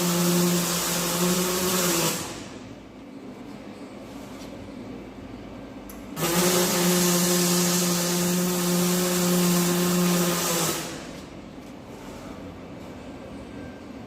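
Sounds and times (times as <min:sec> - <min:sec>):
buzzing hissing welding arc: 0:00.0 - 0:02.6, 0:06.2 - 0:11.1.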